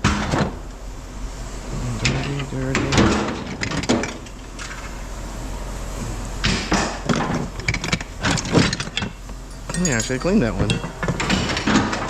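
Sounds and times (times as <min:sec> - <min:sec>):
scrap metal clanking onto pile: 0:07.1 - 0:12.0.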